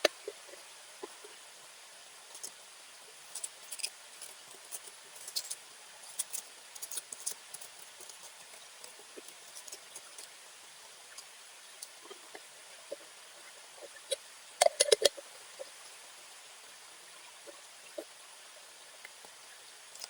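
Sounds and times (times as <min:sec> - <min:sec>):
faint steady hiss: 0:00.0 - 0:20.0
sharp clicks and crackles: 0:13.9 - 0:15.2.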